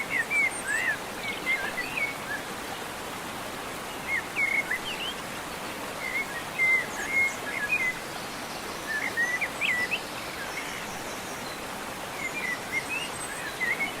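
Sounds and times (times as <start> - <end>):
waterfall rushing: 0.0 - 14.0
songbird chirping: 3.8 - 14.0.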